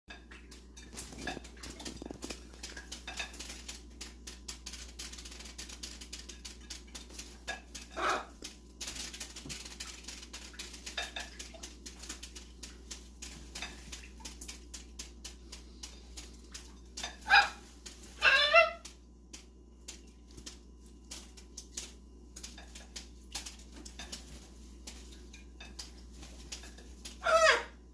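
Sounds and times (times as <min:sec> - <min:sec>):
bird splashing water: 0:00.2 - 0:27.7.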